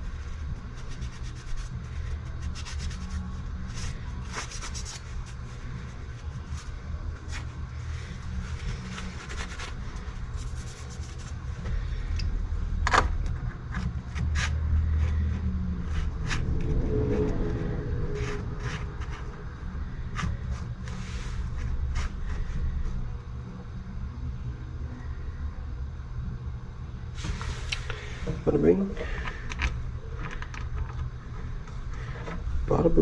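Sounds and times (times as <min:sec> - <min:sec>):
low rumble: 0:05.2 - 0:33.0.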